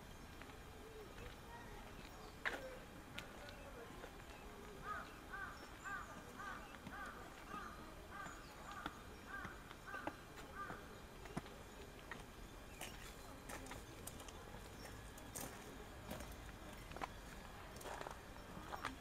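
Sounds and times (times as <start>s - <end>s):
bird calling: 4.5s - 11.5s.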